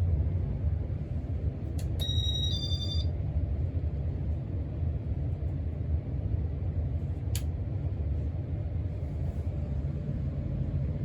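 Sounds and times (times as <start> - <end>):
ceiling fan low rumble: 0.0 - 11.0
two-tone electronic beep: 2.0 - 3.1.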